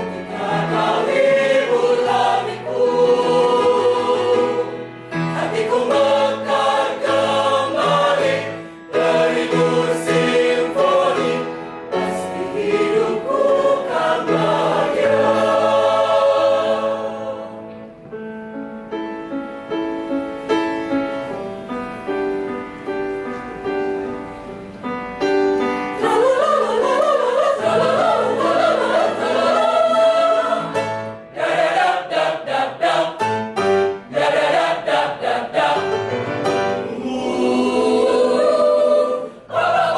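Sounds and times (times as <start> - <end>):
choir singing: 0.0 - 17.8, 25.9 - 39.9.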